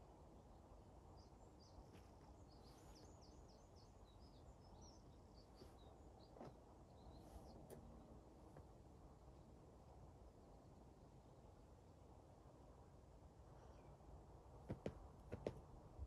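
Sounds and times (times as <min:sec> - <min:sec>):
bird chirping: 0:01.2 - 0:07.8
faint taps: 0:14.7 - 0:15.6.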